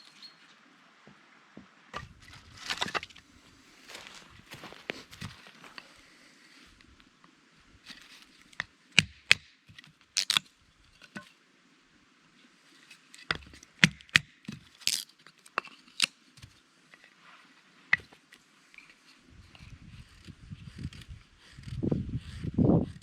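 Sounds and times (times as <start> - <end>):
sharp irregular knocks and cracks: 13.3 - 15.0.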